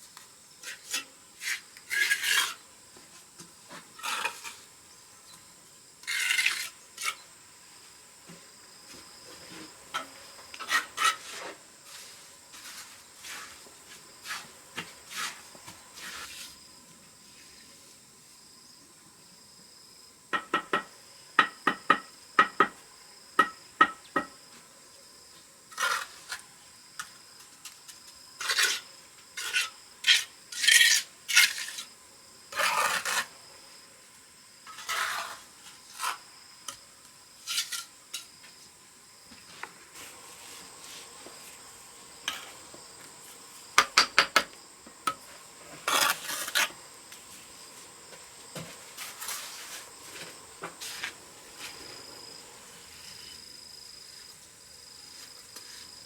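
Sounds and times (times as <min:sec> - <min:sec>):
trowel scraping mortar: 0:00.6 - 0:02.6, 0:03.8 - 0:04.7, 0:06.0 - 0:07.3, 0:10.6 - 0:16.6, 0:25.7 - 0:26.5, 0:28.4 - 0:31.9, 0:32.5 - 0:33.4, 0:34.7 - 0:36.8, 0:37.4 - 0:38.3, 0:45.7 - 0:46.8, 0:49.0 - 0:49.9
trowel tapping brick: 0:43.8 - 0:45.2.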